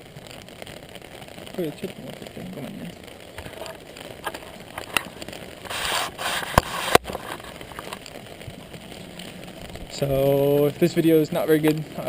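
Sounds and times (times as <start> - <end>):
brief rustle: 3.4 - 8.0.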